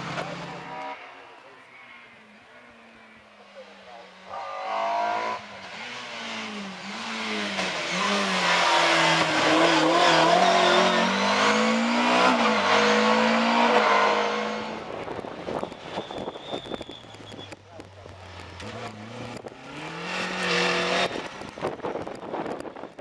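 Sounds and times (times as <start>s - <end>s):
rally car passing at speed: 4.2s - 16.7s, 18.3s - 22.9s.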